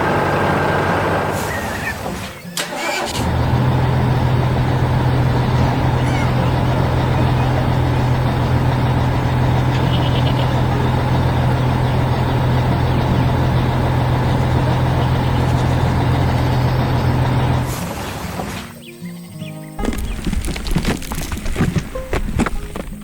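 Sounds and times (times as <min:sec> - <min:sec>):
heavy truck engine running: 0:00.0 - 0:18.9, 0:19.8 - 0:23.0.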